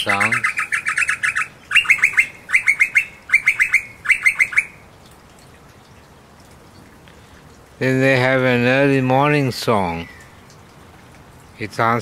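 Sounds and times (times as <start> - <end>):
bird rapid chirping: 0.0 - 4.8.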